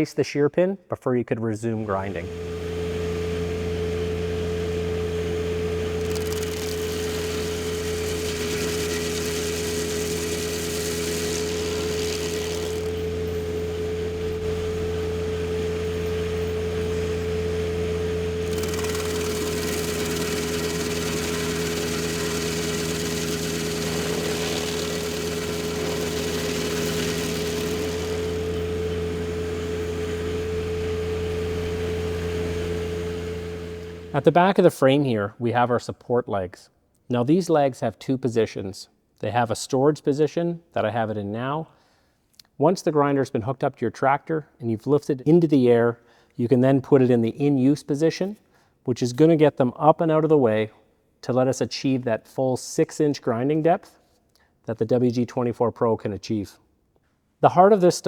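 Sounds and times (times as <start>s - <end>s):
tractor engine running: 2.2s - 34.2s.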